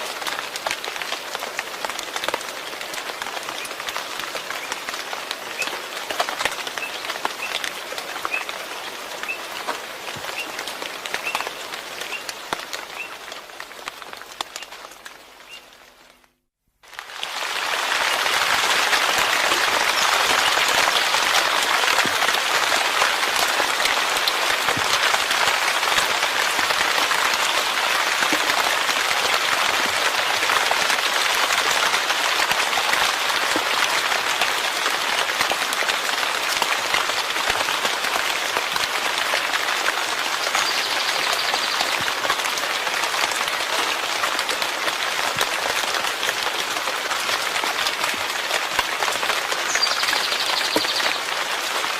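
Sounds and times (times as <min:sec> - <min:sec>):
steady rain falling: 0:00.0 - 0:51.9.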